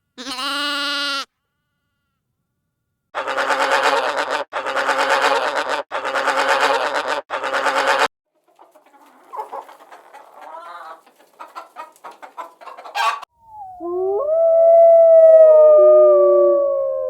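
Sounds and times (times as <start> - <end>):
hen clucking and squawking: 3.2 - 13.3
long gliding howl: 13.6 - 17.0.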